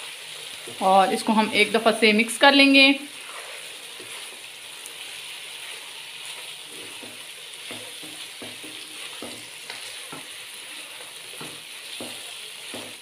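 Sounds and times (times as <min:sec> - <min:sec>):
meat sizzling in a wok: 0:00.0 - 0:13.0
spatula scraping a wok: 0:03.0 - 0:13.0.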